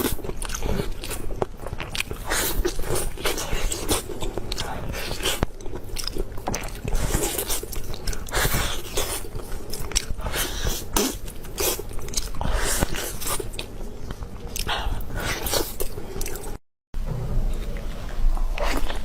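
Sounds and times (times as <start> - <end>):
crunchy food being chewed: 0.0 - 16.6.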